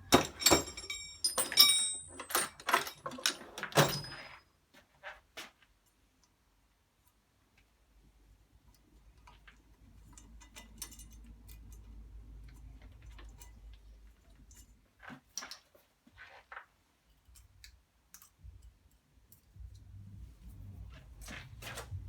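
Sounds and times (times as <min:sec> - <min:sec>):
hand tools clicking and knocking: 0:00.0 - 0:04.4.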